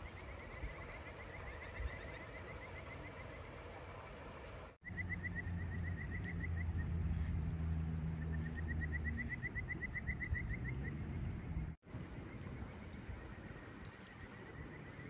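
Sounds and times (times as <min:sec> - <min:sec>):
animal chirping: 0:08.2 - 0:11.0.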